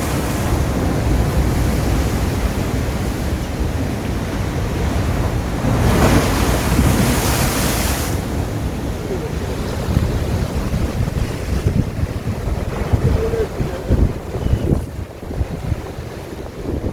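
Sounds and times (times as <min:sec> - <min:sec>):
sea waves washing on shore: 0:00.0 - 0:16.9
wind buffeting microphone: 0:00.0 - 0:16.9
wave surging with rushing hiss: 0:05.0 - 0:15.6.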